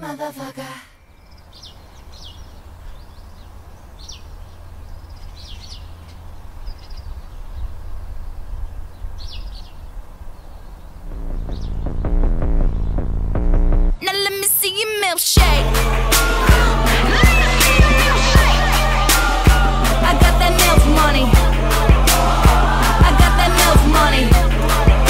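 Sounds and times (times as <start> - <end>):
birds chirping: 0.8 - 13.4, 15.4 - 25.0
music: 11.1 - 25.0.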